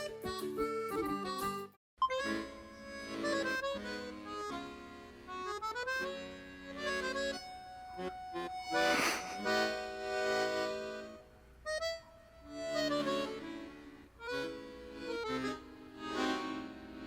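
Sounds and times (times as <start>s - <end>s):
background music with held notes: 0.0s - 8.7s, 10.7s - 17.0s
short noisy burst: 8.8s - 9.7s.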